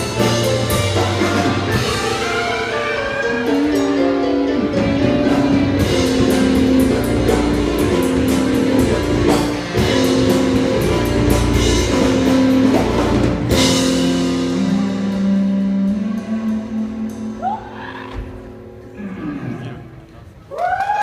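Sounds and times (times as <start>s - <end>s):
cajon playing: 0.0s - 16.6s
piano playing: 0.0s - 20.2s.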